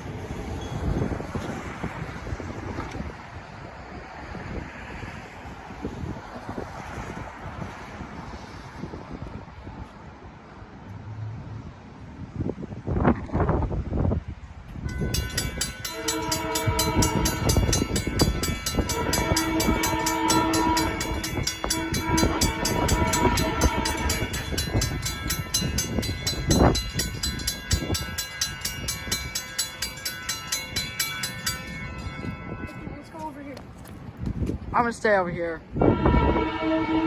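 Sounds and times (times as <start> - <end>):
train rumble: 0.0 - 37.0
crossing warning bell ringing: 0.1 - 1.6, 14.8 - 33.6, 35.8 - 37.0
train horn blasts: 14.9 - 26.8, 31.4 - 33.2, 35.8 - 37.0.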